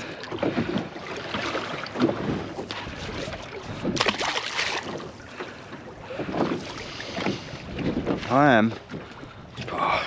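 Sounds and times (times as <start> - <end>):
water around boat: 0.0 - 10.0
wind buffeting microphone: 0.3 - 10.0.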